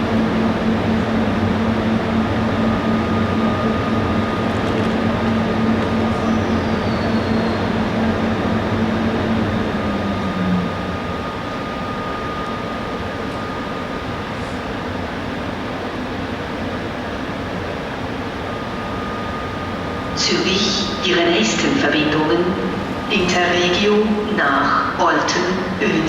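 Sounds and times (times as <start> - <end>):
pitched drone: 0.0 - 13.4
train equipment humming: 0.0 - 26.0.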